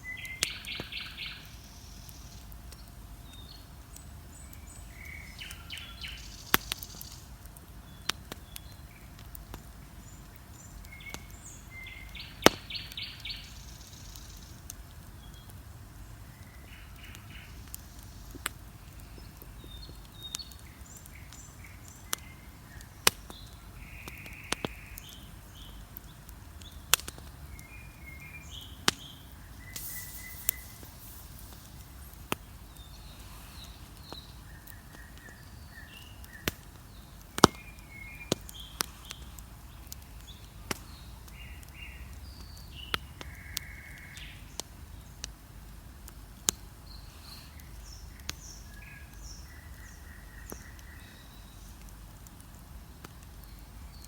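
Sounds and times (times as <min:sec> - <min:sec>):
bonfire crackling and popping: 0:00.0 - 0:54.0.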